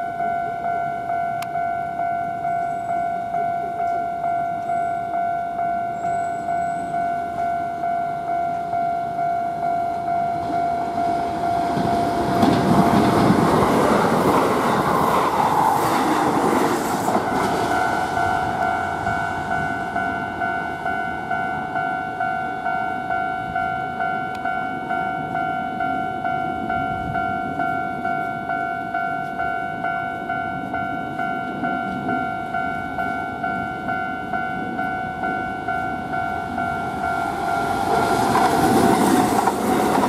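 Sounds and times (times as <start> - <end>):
level crossing bell ringing: 0.0 - 14.0, 17.1 - 38.9
train wheels clattering over rails: 10.4 - 20.2, 36.5 - 40.0.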